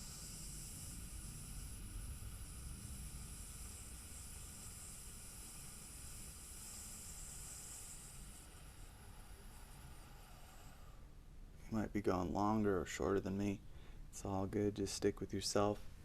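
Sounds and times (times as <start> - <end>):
long breathy f sound exhale: 0.0 - 11.2.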